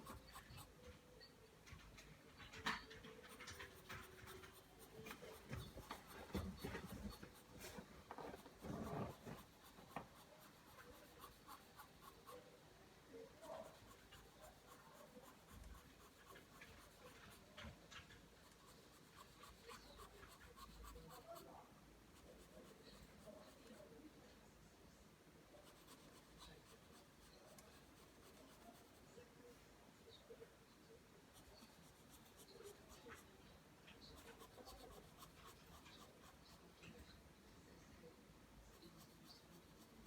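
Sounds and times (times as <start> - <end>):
pencil scratching on paper: 0.0 - 0.9, 2.6 - 12.4, 13.4 - 23.9, 25.6 - 29.2, 31.3 - 37.1, 38.7 - 40.0.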